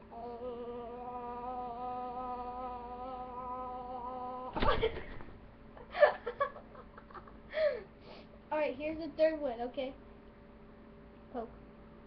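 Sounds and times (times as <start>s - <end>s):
person humming: 0.0s - 4.6s.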